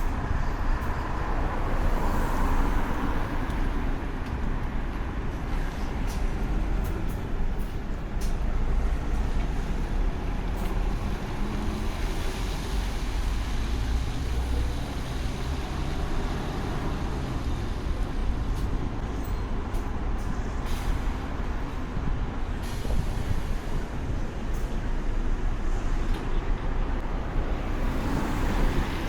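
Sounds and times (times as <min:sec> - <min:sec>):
passing vehicles: 0:00.0 - 0:29.0
wind rumble on microphone: 0:00.0 - 0:29.0
tyres hissing on wet road: 0:01.2 - 0:04.0, 0:08.2 - 0:25.9, 0:27.1 - 0:29.0.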